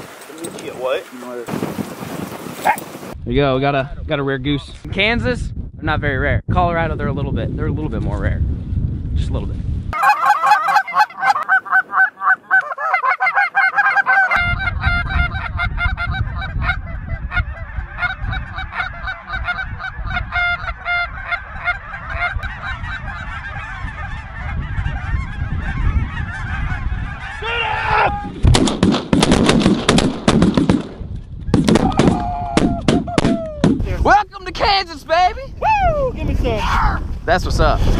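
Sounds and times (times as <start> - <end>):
geese honking: 10.0 - 27.7
shotgun fire: 28.4 - 33.8.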